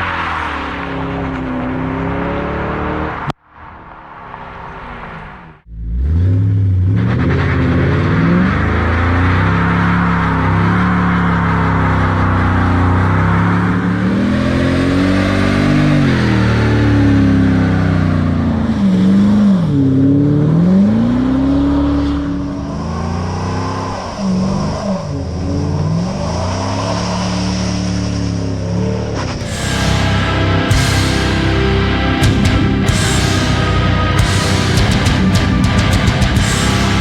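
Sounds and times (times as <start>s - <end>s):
car exhaust note rising and falling: 0.0s - 37.0s
steady high whine: 29.4s - 37.0s.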